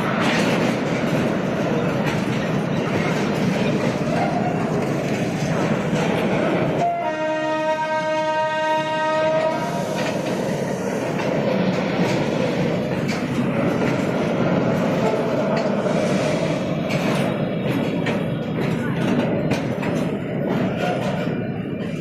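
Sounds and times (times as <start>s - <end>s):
wheels clicking over rail joints: 0.0s - 6.8s, 11.1s - 15.8s, 16.8s - 22.0s
train horn: 6.8s - 9.8s, 15.0s - 15.3s.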